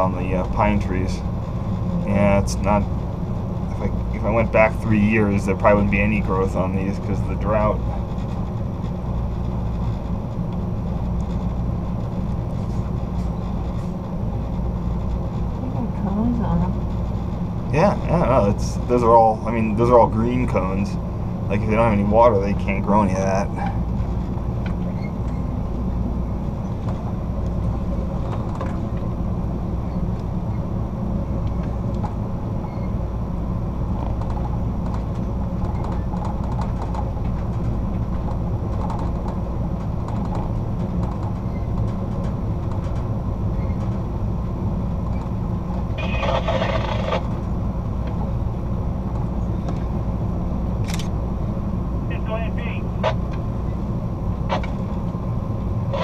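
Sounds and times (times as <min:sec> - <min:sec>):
train rumbling over rails: 0:00.0 - 0:56.0.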